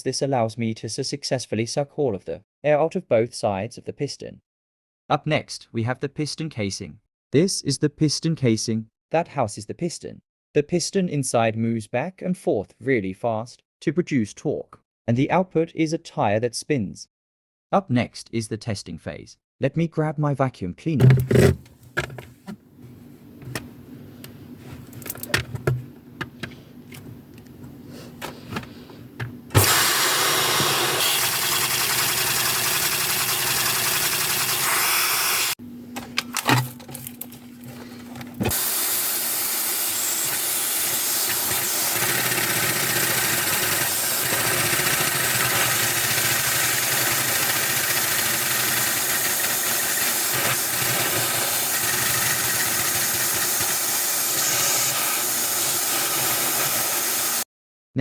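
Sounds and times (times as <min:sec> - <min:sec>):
handling clicks and knocks: 0:21.0 - 0:22.6, 0:24.8 - 0:29.8, 0:36.0 - 0:38.6
vacuum cleaner running: 0:29.2 - 0:57.4.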